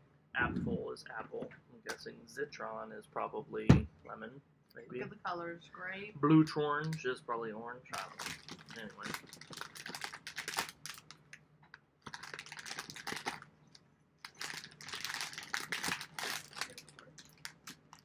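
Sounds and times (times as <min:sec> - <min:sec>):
plastic wrapper crinkling: 0:08.0 - 0:11.4, 0:12.0 - 0:18.0.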